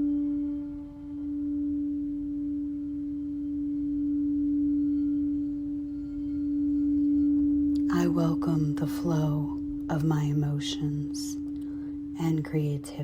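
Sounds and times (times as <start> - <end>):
crystal singing bowl ringing: 0.0 - 13.0.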